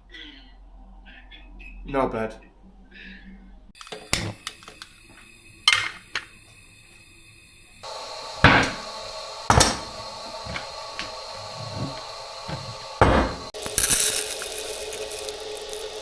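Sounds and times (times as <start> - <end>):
steady hiss: 3.8 - 16.0
objects knocking and clattering: 8.4 - 8.9, 9.5 - 16.0.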